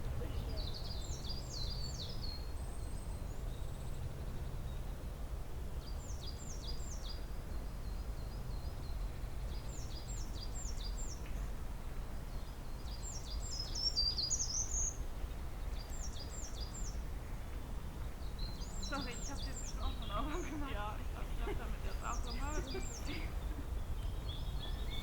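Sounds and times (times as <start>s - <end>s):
songbird singing: 0.0s - 25.0s.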